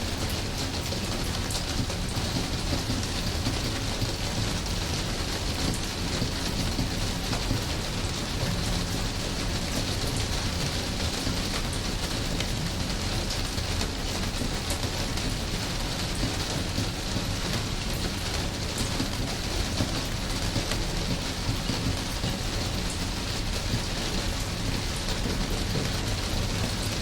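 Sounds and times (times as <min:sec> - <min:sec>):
heavy rain: 0:00.0 - 0:27.0
raindrop ticks: 0:05.4 - 0:09.0, 0:09.6 - 0:27.0.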